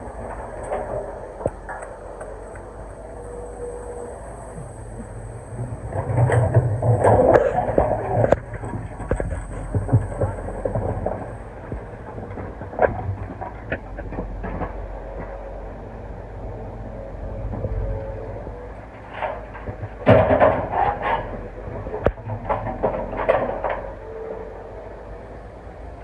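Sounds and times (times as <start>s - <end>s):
excavator engine running: 0.0s - 26.0s.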